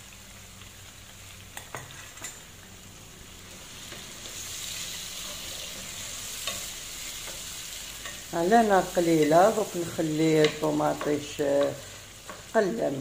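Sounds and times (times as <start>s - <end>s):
food sizzling in hot oil: 0.0s - 13.0s
spatula stirring: 3.8s - 12.6s
spatula knocking pan: 10.2s - 12.5s.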